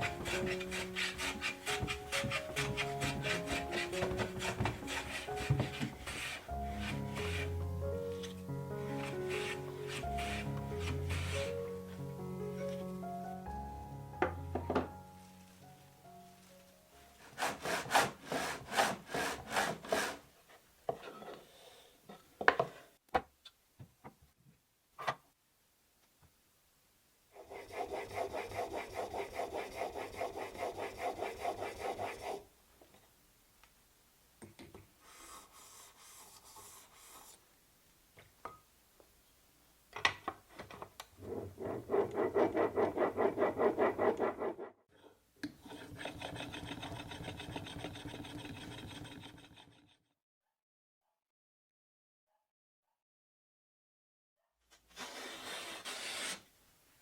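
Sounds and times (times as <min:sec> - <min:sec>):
hand tool strokes on wood: 0:00.0 - 0:11.7, 0:17.2 - 0:20.2.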